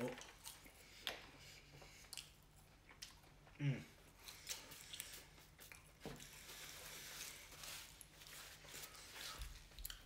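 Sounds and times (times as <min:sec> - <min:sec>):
person chewing: 0:00.0 - 0:10.0.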